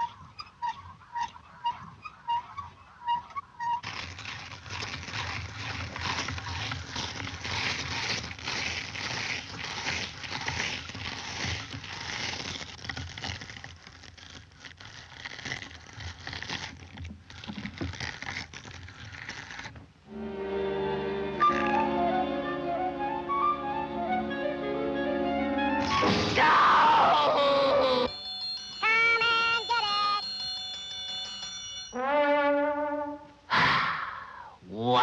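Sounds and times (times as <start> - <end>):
dense crackling and crunching: 3.2 - 20.0, 25.8 - 31.6.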